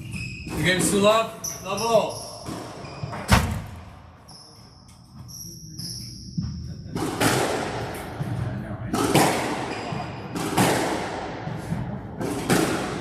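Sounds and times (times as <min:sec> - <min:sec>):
shoes squeaking on court floor: 0:00.0 - 0:07.3, 0:09.6 - 0:10.4.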